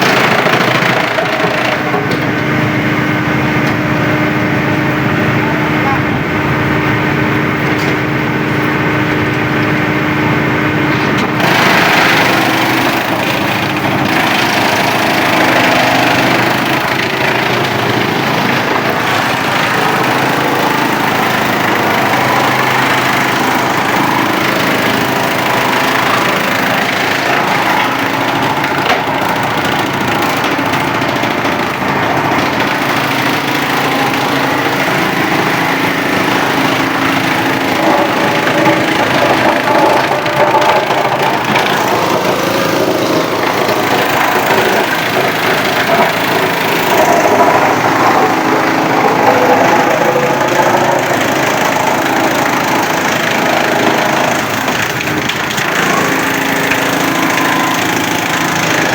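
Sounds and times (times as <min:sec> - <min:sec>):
wood chipper engine running: 0:00.0 - 0:58.9
rough noise of wood chipping: 0:11.4 - 0:57.0.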